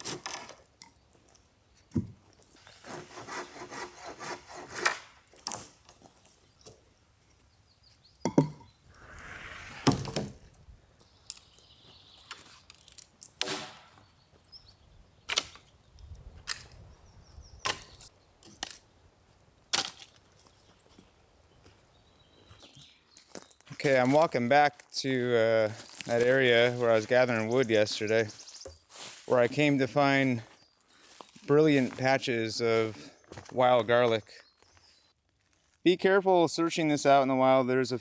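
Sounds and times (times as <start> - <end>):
wood scraping: 8.8 - 10.7.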